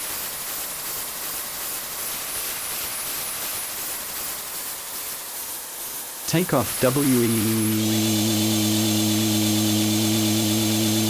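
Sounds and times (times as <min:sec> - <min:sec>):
jet engines hissing: 0:06.3 - 0:11.0.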